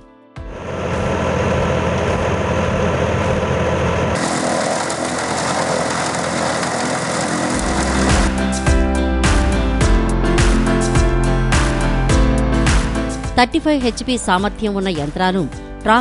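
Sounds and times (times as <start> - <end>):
tractor engine running chaff cutter: 0.6 - 8.6.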